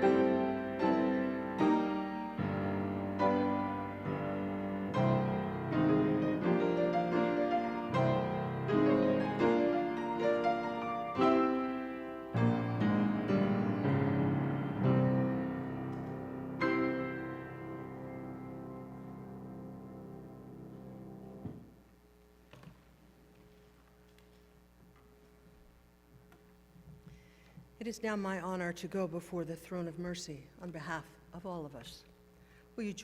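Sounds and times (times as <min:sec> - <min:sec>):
slow piano chords: 0:00.0 - 0:22.0.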